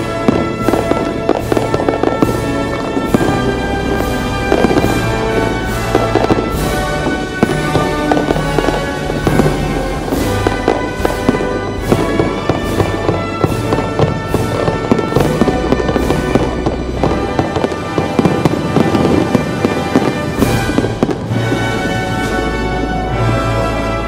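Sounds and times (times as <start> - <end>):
fireworks bangs and crackling pops: 0.0 - 24.0
loud music: 0.0 - 24.0.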